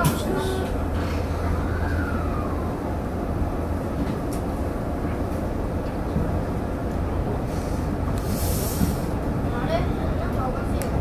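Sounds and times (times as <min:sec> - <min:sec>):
low hum: 0:00.0 - 0:05.2
train wheels rumbling on rail: 0:00.0 - 0:11.0.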